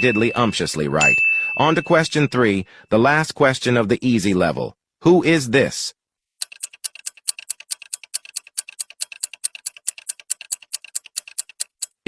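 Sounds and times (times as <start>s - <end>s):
clock ticking fast: 6.4s - 12.0s.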